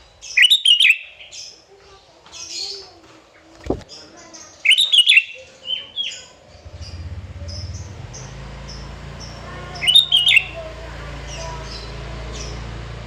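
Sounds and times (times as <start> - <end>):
bird chirping song: 0.0 - 12.7
faint high chirps: 0.3 - 1.6, 3.6 - 12.6
low thump: 3.6 - 3.9
steady low hum: 5.8 - 13.0.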